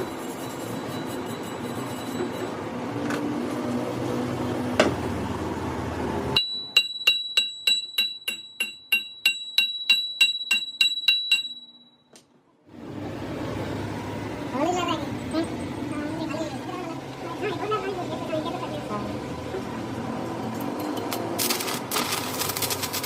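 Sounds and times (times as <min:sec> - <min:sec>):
workshop machinery noise: 0:00.0 - 0:23.0
hammer tapping on steel: 0:06.4 - 0:11.8.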